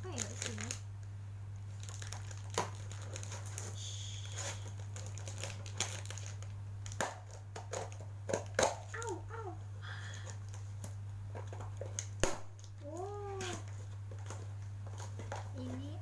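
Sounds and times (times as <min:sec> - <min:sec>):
plastic packaging crinkling: 0:00.0 - 0:00.8, 0:01.6 - 0:08.0
steady low hum: 0:00.0 - 0:16.0.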